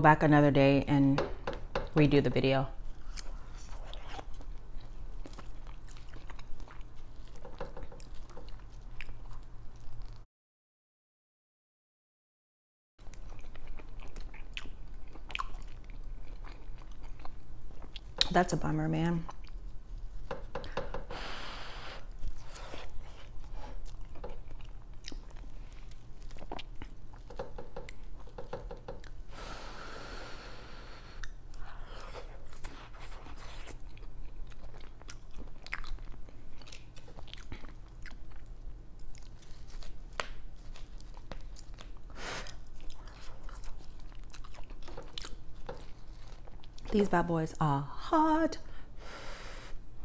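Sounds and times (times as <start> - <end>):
chewing mouth sounds: 3.0 - 10.2, 13.0 - 18.4, 22.1 - 29.2, 31.1 - 46.9
steady low hum: 13.0 - 50.0.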